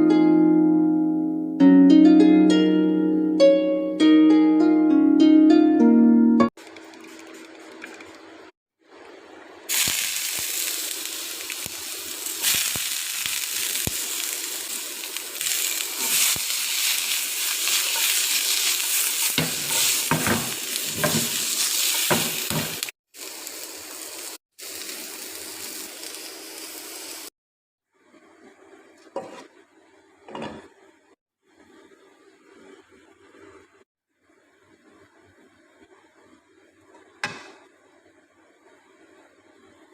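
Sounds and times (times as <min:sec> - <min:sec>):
food sizzling in frying pan: 0:09.0 - 0:27.3
utensil knocking in pan: 0:19.3 - 0:22.9.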